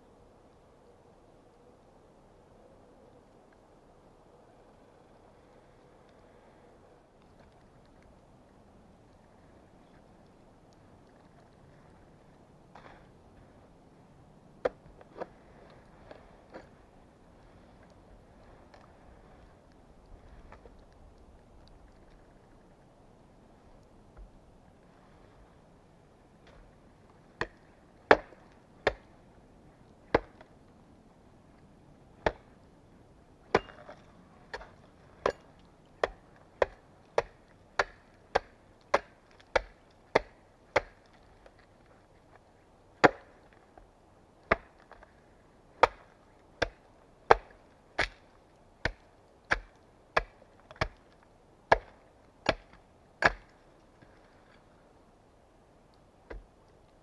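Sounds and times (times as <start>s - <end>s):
axe chopping wood: 27.4s - 29.1s, 30.1s - 30.5s, 32.2s - 32.5s, 33.5s - 35.4s, 36.0s - 41.0s, 43.0s - 43.4s, 44.5s - 44.8s, 45.8s - 48.2s, 48.8s - 51.0s, 51.7s - 53.6s.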